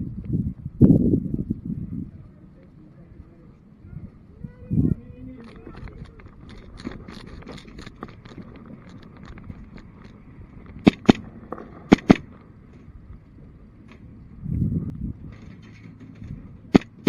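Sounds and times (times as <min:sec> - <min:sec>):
distant shots clicking: 0:05.4 - 0:12.8, 0:16.7 - 0:17.0
pellets hitting: 0:10.8 - 0:11.3, 0:16.8 - 0:17.0
pistol shots sharp cracks: 0:10.8 - 0:12.4, 0:16.7 - 0:17.0.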